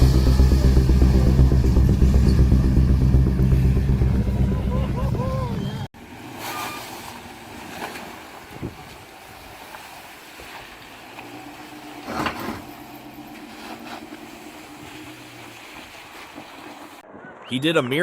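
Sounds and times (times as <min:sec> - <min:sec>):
vehicle engine: 0:00.0 - 0:06.3, 0:11.0 - 0:16.0
wind on microphone: 0:08.5 - 0:09.1.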